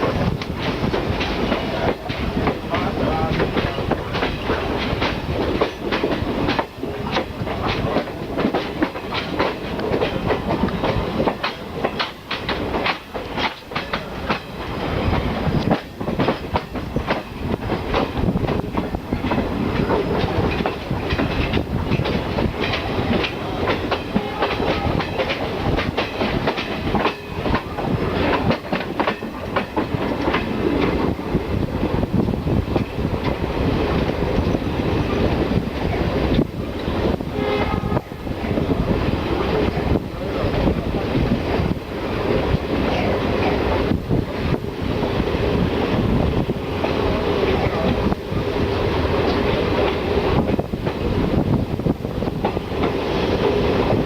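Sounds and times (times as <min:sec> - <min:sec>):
train wheels clattering over rail joints: 0:00.0 - 0:37.3, 0:38.4 - 0:54.0
train rumble: 0:00.0 - 0:54.0.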